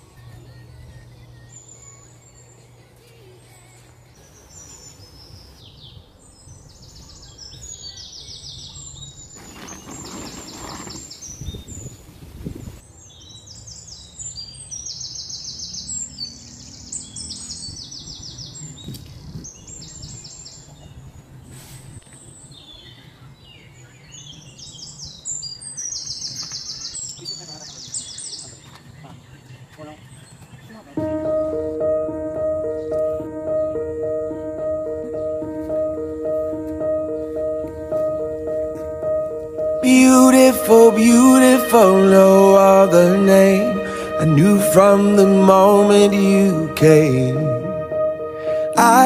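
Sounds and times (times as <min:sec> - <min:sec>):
birds chirping: 0:00.0 - 0:12.0, 0:12.6 - 0:21.0, 0:22.1 - 0:49.0.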